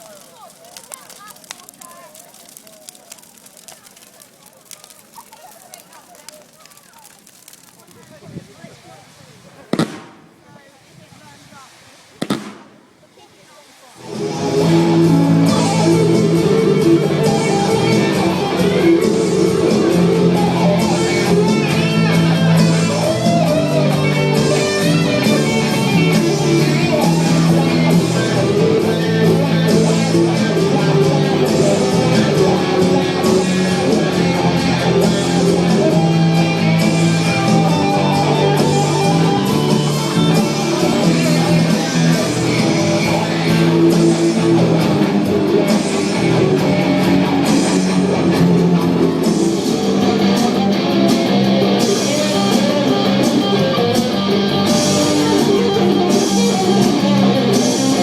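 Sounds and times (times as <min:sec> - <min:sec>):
rock band playing: 0:14.0 - 0:58.0.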